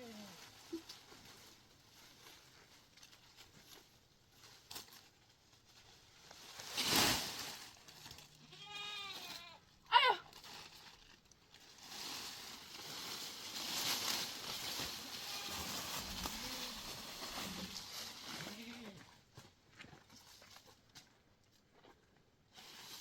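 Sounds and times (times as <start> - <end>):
goats bleating: 8.3 - 10.2, 15.1 - 17.2.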